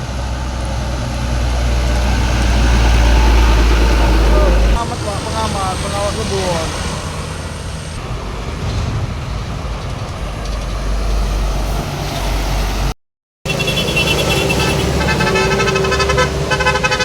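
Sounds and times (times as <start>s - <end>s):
low engine rumble: 0.0s - 12.9s
heavy vehicles passing: 0.0s - 17.0s.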